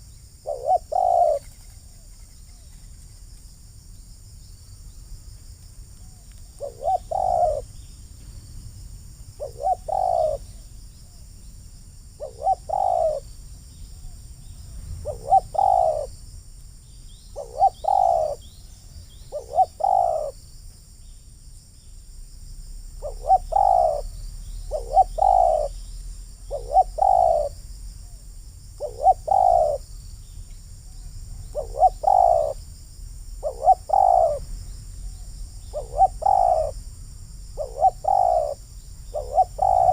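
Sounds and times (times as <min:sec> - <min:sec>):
dove cooing: 0:00.0 - 0:01.8, 0:06.1 - 0:07.8, 0:09.4 - 0:10.6, 0:12.2 - 0:13.3, 0:15.0 - 0:16.1, 0:17.4 - 0:18.5, 0:19.2 - 0:20.4, 0:23.0 - 0:25.8, 0:26.4 - 0:28.2, 0:28.8 - 0:29.8, 0:31.5 - 0:32.6, 0:33.4 - 0:34.5, 0:35.6 - 0:36.8, 0:37.6 - 0:39.9.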